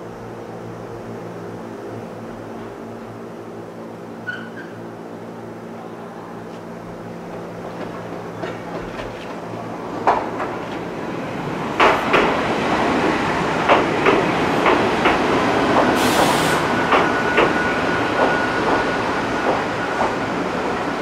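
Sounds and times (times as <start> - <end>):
train wheels clicking over rail joints: 7.2 - 10.9, 11.8 - 12.5, 13.1 - 20.2
brief hiss: 16.0 - 16.7.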